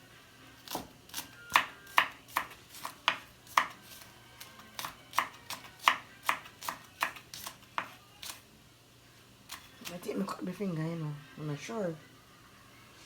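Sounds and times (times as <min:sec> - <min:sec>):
knife chopping on board: 0:00.6 - 0:08.4.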